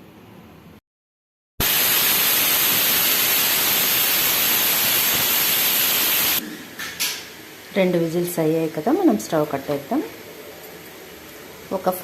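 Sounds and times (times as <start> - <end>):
pressure cooker steam hiss: 1.6 - 6.4.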